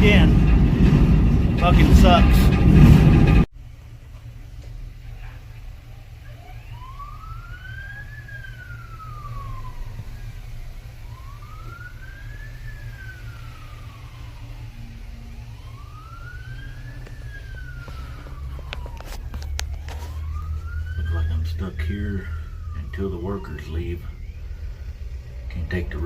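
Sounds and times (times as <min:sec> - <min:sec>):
steady low rumble: 0:00.0 - 0:26.0
siren wailing: 0:05.8 - 0:26.0.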